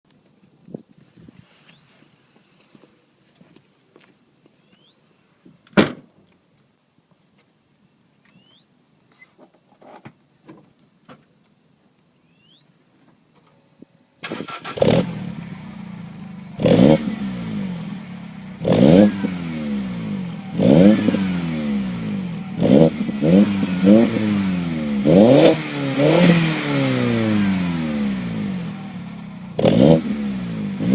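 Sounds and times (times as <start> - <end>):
car engine revving: 14.3 - 30.9
car engine idling: 14.4 - 24.5, 27.3 - 30.9.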